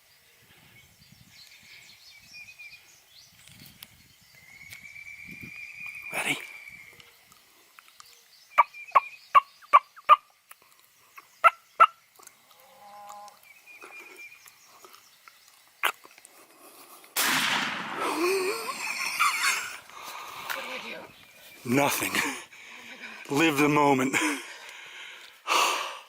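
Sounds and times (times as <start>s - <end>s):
turkeys calling: 8.5s - 16.8s, 17.9s - 23.6s.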